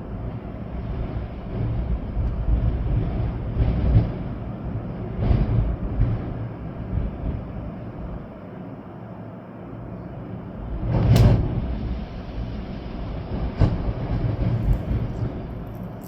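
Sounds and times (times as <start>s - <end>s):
storm wind buffeting microphone: 0.0s - 8.9s, 9.6s - 16.0s
rain: 0.0s - 16.0s.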